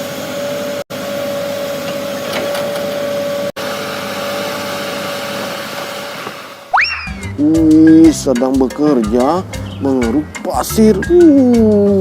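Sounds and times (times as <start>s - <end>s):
rising and falling whistle: 6.7s - 7.4s.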